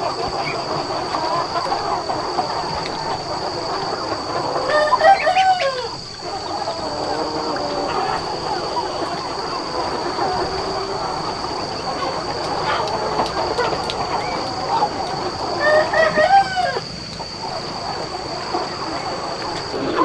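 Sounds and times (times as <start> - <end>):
chickens clucking: 0.0 - 20.0
rooster crowing: 4.5 - 13.0, 13.6 - 17.4
high-pitched whine: 18.7 - 20.0.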